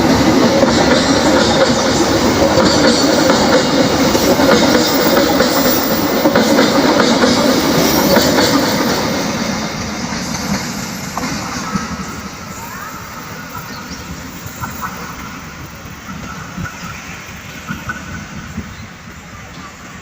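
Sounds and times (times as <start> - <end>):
train wheels knocking over rails: 0.0 - 12.5.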